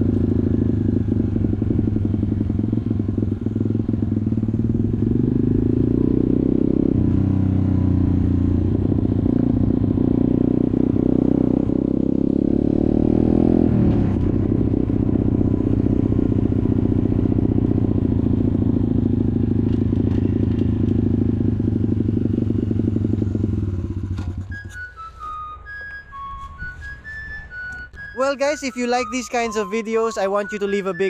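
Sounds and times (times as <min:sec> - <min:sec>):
motorcycle engine running: 0:00.0 - 0:24.8
music: 0:24.5 - 0:31.0.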